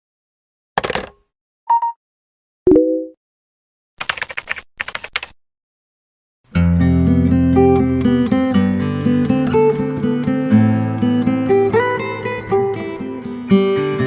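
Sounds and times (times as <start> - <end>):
rapid keyboard-like clicking: 4.0 - 5.4
guitar music: 6.5 - 14.0.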